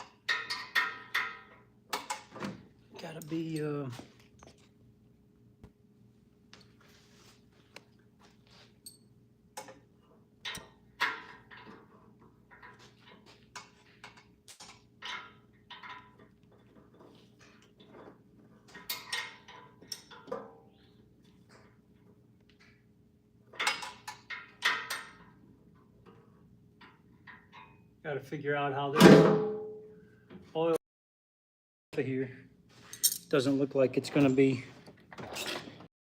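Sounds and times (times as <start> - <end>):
metal tools clinking: 3.0 - 4.6, 32.8 - 35.8.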